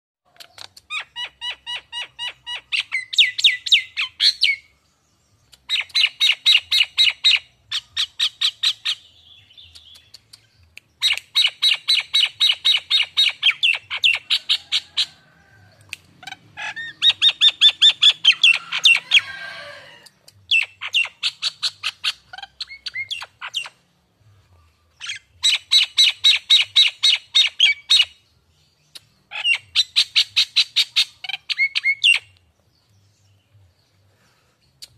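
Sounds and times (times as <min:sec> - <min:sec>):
myna whistling calls: 0:16.3 - 0:23.8, 0:29.0 - 0:32.4.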